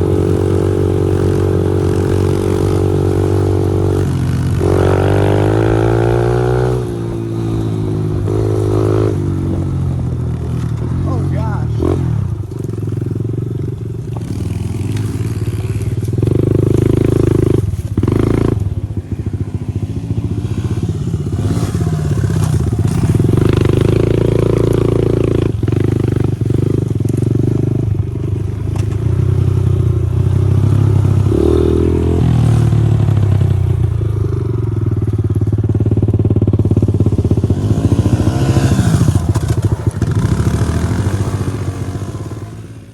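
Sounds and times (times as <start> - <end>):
pit bike engine: 0.0 - 42.9.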